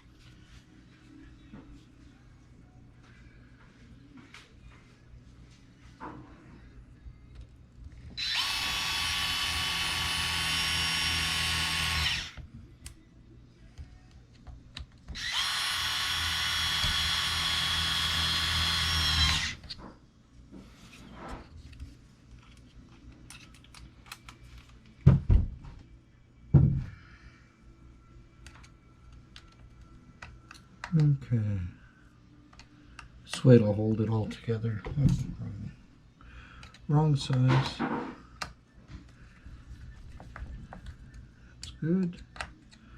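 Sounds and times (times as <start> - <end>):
power drill driving screws: 8.2 - 12.4, 15.2 - 19.7.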